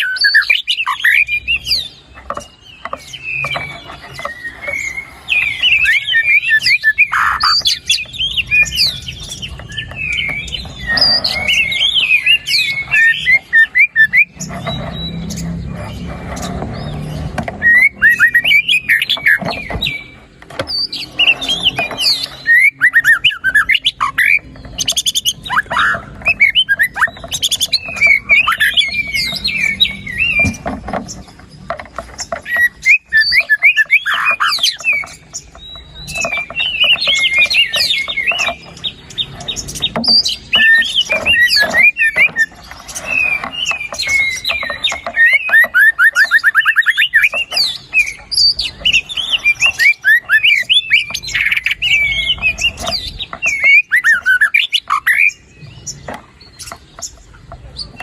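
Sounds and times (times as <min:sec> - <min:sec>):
songbird singing varied whistles: 0:17.6 - 0:30.6.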